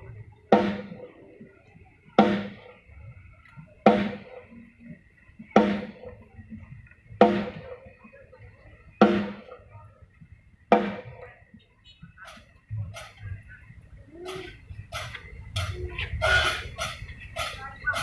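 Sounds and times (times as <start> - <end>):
drum hits through speakers: 0.0 - 1.2, 2.2 - 2.9, 3.8 - 8.2, 8.9 - 9.6, 10.7 - 11.4.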